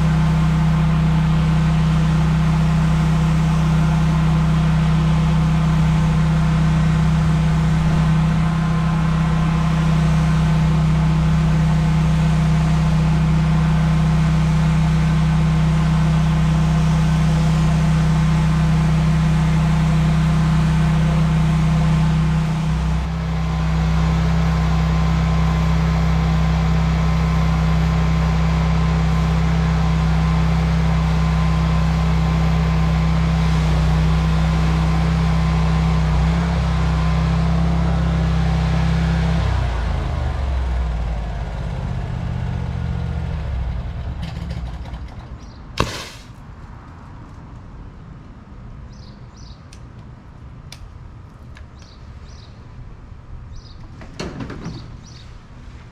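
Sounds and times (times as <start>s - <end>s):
pressure washer engine droning: 0.0s - 43.9s, 45.8s - 46.4s
water spray hiss: 45.8s - 46.4s.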